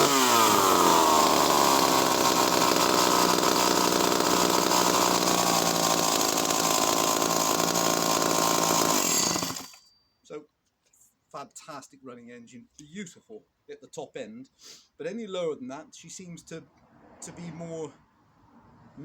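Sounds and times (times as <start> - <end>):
chainsaw engine running loudly: 0.0 - 9.8.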